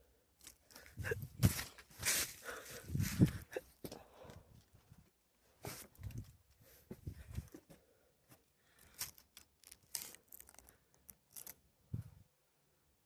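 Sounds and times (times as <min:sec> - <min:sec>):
footsteps crunching on forest trail: 0:01.4 - 0:04.0.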